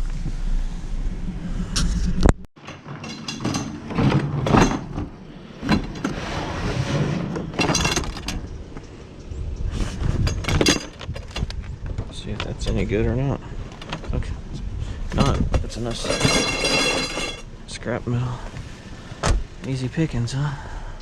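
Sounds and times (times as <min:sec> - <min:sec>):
scrap metal clanking and rattling: 0:02.6 - 0:08.6, 0:09.8 - 0:13.0, 0:15.1 - 0:17.5.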